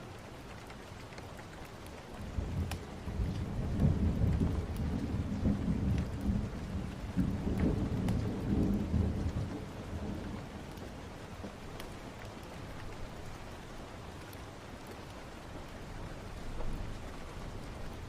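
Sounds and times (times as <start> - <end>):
steady rain: 0.0 - 18.0
thunder rumbling: 2.2 - 11.1.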